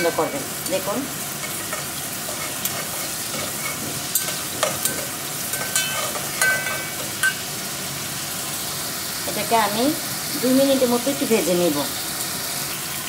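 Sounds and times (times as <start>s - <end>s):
shrimp sizzling in hot oil: 0.0s - 13.0s
metal spatula scraping a pot: 1.4s - 7.4s.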